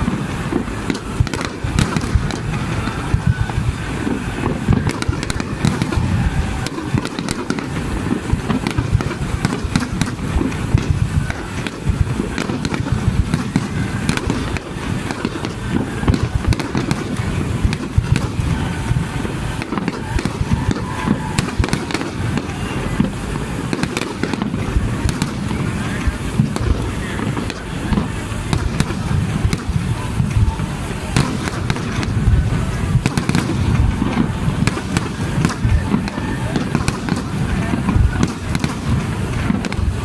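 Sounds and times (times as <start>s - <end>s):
fireworks booming: 0.0s - 40.0s
fireworks crackling: 0.0s - 40.0s.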